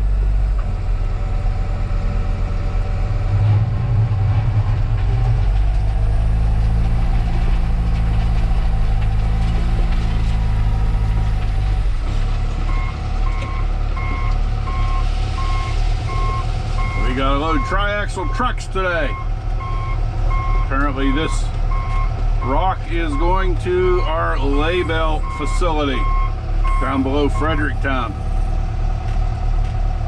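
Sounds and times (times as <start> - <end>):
loader diesel engine running: 0.0 - 30.0
reversing alarm beeping: 12.7 - 18.4, 19.1 - 27.6.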